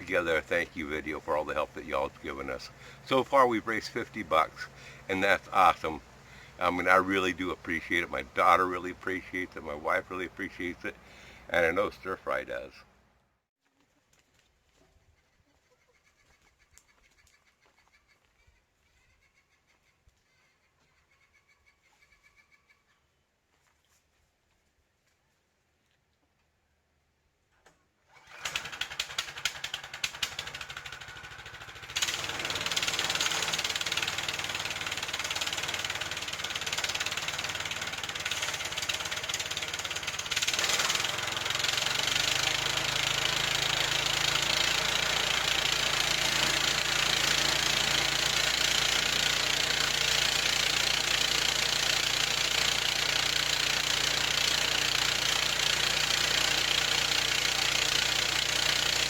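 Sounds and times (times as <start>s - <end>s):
sawmill gasoline engine running: 0.0s - 12.8s, 28.1s - 59.0s.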